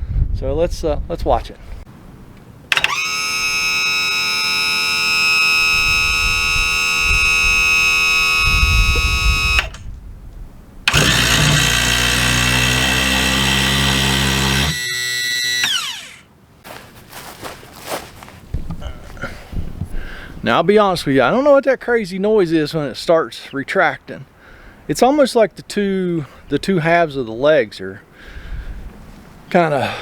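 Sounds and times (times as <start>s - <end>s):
electric pump motor whining: 2.7s - 9.8s, 10.9s - 16.3s.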